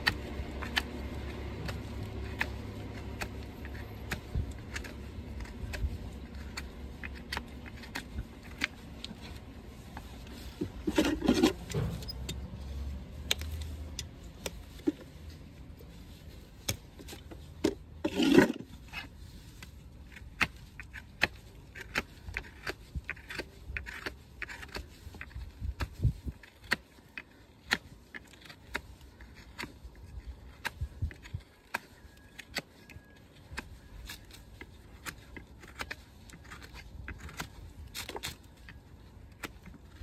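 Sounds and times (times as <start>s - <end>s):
scraping on hoof: 0.0s - 40.0s
hoof trimming clicks and taps: 13.2s - 15.2s, 19.5s - 40.0s.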